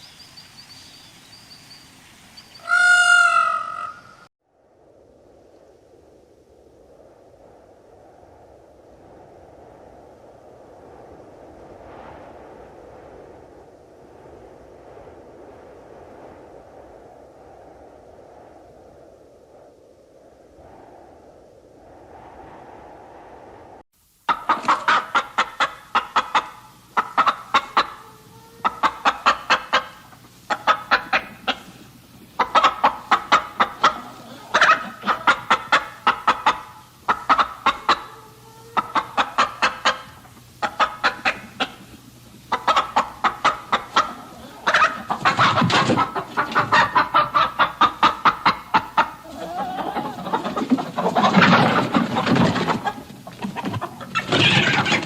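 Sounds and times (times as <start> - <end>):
chickens clucking: 24.3 - 55.0.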